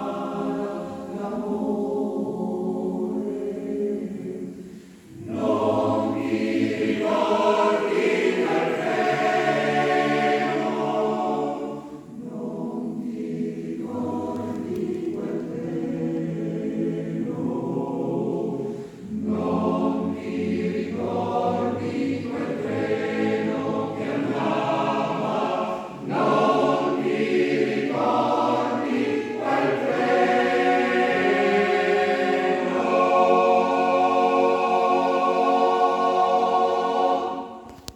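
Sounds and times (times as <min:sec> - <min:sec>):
choir singing a cappella: 0:00.0 - 0:37.9
singers breathing: 0:04.5 - 0:05.2, 0:18.6 - 0:19.1.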